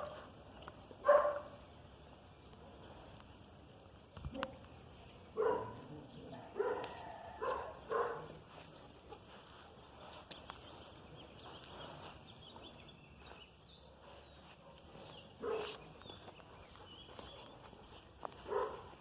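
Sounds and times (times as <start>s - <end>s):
dog barking: 1.0s - 1.6s, 5.4s - 8.4s, 14.6s - 15.8s, 18.4s - 19.0s.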